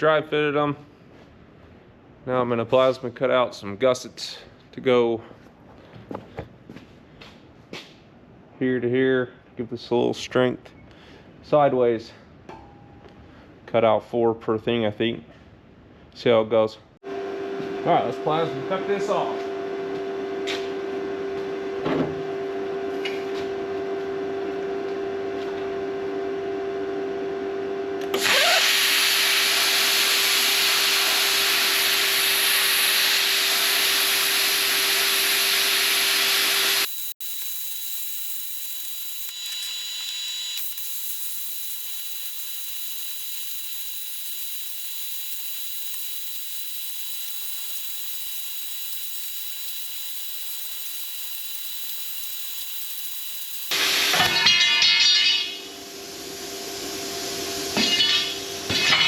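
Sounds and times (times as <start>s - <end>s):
plasma cutter hissing: 36.2s - 53.9s
faint high whine: 36.8s - 53.8s.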